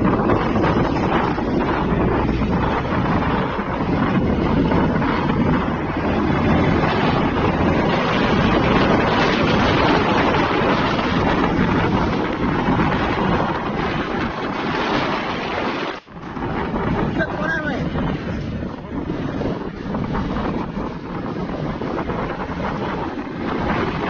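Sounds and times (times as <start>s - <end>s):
road traffic rumble: 0.0s - 24.0s
truck engines: 0.0s - 24.0s
wind buffeting microphone: 0.0s - 24.0s.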